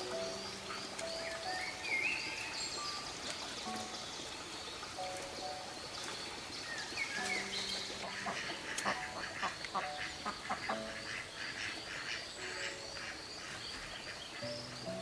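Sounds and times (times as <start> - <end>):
birds chirping: 0.0 - 15.0
soft background music: 0.0 - 15.0
ducks quacking: 7.2 - 15.0.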